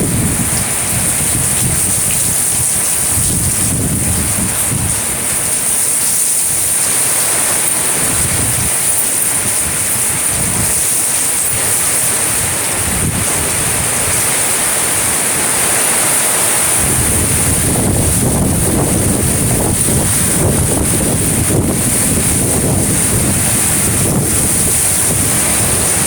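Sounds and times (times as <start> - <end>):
strong wind buffeting microphone: 0.0 - 26.0.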